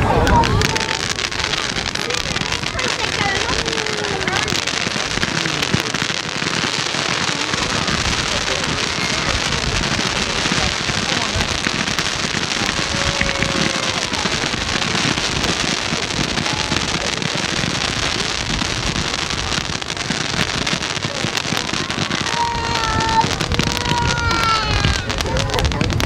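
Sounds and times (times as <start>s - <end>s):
fireworks crackling and hissing: 0.0s - 26.0s.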